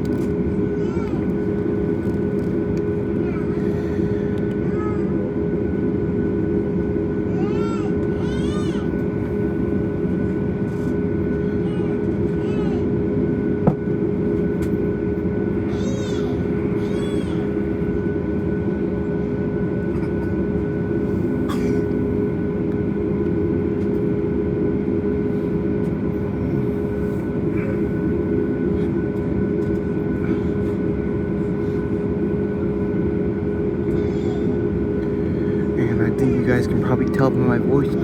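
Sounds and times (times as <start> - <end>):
aircraft engines idling: 0.0 - 38.0.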